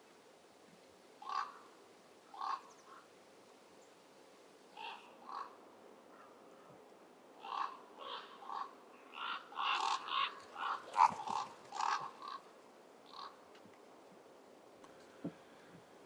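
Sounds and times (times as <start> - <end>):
ravens giving harsh alarm calls: 1.2 - 3.1, 4.7 - 6.7, 7.4 - 13.4.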